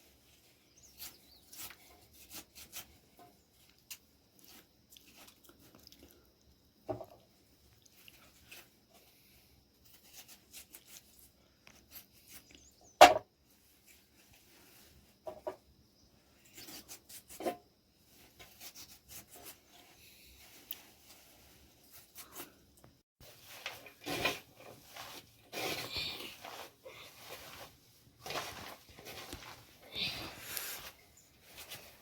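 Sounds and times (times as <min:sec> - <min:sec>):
rubbing and scraping: 0:00.0 - 0:05.3, 0:16.3 - 0:22.6, 0:23.2 - 0:32.0.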